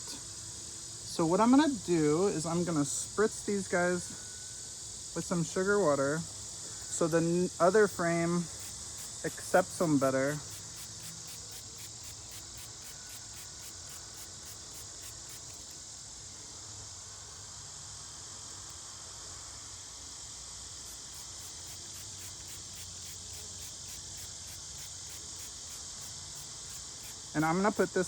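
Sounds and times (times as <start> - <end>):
insects chirping: 0.0 - 28.0.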